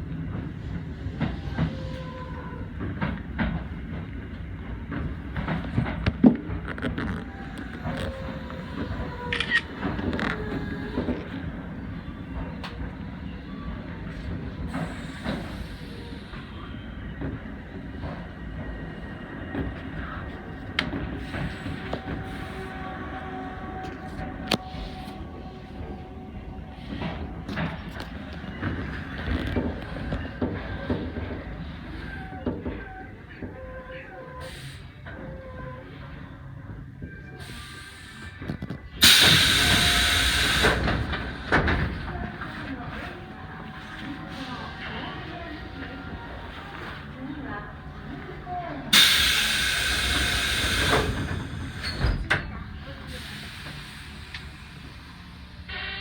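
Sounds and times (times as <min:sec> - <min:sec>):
train wheels rumbling: 0:00.0 - 0:56.0
compressed air hiss: 0:39.0 - 0:41.4, 0:49.0 - 0:51.9.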